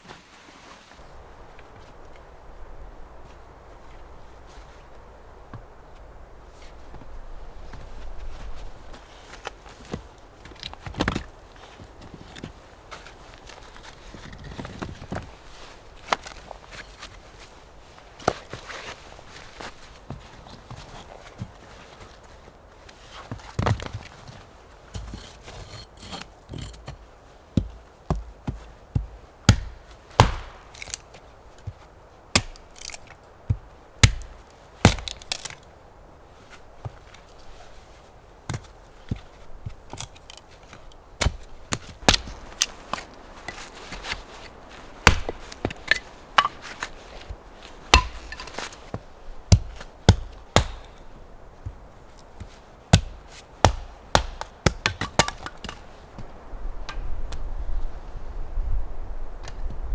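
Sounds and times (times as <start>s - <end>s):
wood chopping strikes: 27.6s - 35.6s, 38.5s - 55.8s.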